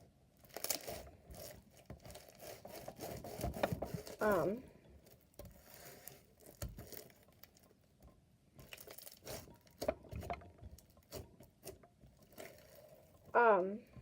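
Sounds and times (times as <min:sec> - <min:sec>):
soft taps clicks and crinkles: 0:04.9 - 0:14.0.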